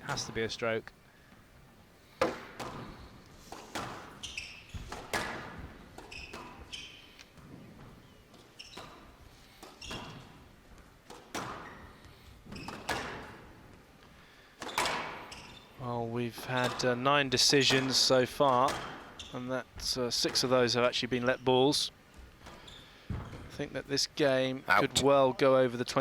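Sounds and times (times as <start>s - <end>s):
squash ball struck by rackets: 2.2s - 4.2s, 4.8s - 6.6s, 12.7s - 13.4s.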